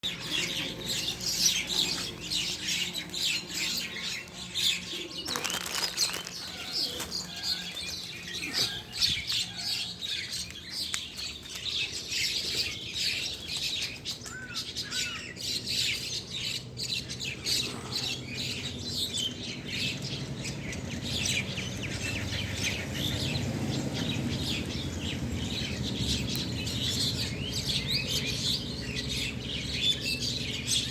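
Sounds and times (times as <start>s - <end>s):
small birds chirping and twittering: 0.0s - 30.9s
rustle of wings: 5.0s - 9.0s.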